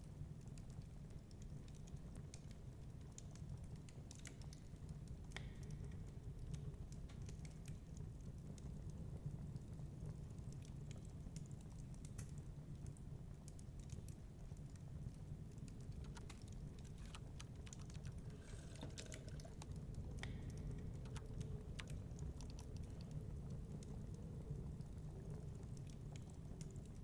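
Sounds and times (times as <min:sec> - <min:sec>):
wood fire crackling: 0:00.1 - 0:27.0.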